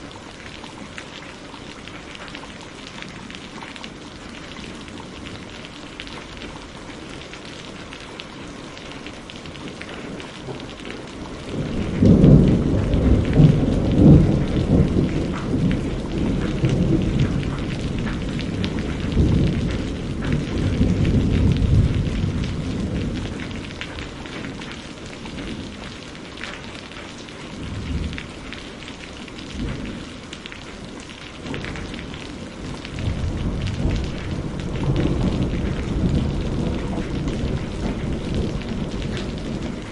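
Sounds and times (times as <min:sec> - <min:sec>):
rain falling: 0:00.0 - 0:39.9
thunder rumbling: 0:10.2 - 0:26.0, 0:31.4 - 0:39.9.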